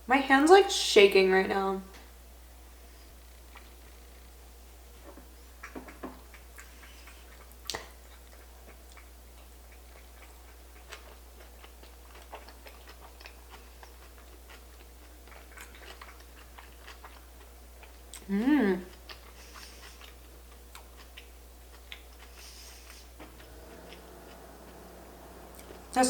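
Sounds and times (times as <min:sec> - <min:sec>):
wet chewing smacks: 0:05.6 - 0:18.3, 0:18.9 - 0:24.8.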